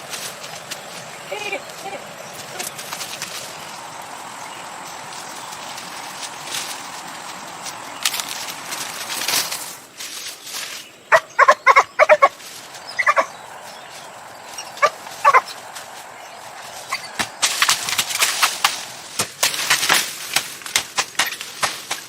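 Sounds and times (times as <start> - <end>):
brushing and rustling: 0.0 - 11.0, 12.2 - 22.0
dog barking: 11.1 - 12.3, 13.0 - 13.3, 14.8 - 15.5.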